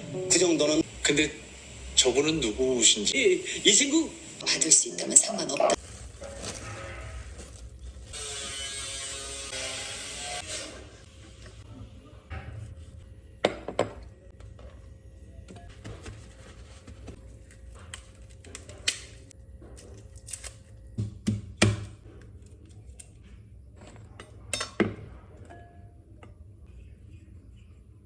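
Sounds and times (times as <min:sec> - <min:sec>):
faint background music: 0:00.0 - 0:01.4.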